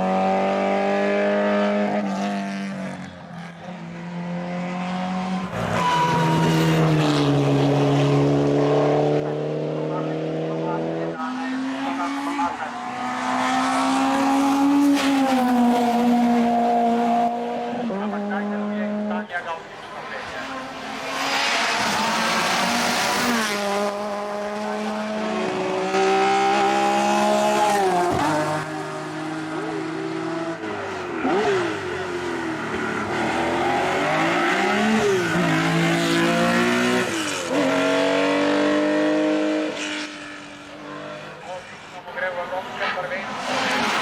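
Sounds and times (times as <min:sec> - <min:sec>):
race car engine revving: 0:00.0 - 0:44.0.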